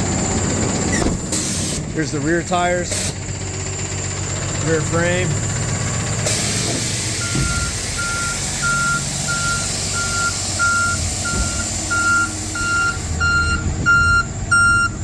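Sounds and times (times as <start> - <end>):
diesel truck engine running: 0.0 - 15.0
backup alarm beeping: 6.3 - 15.0
higher-pitched beeping: 7.1 - 15.0.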